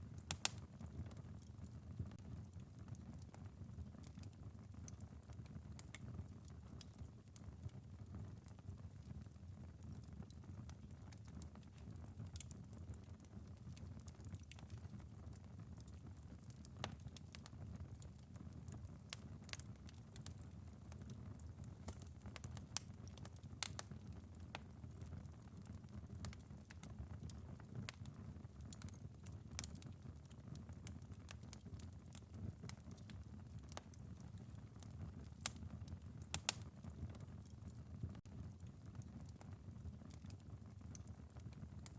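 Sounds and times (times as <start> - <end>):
light rain on a window: 0.0 - 41.9
wood fire crackling: 0.0 - 41.9.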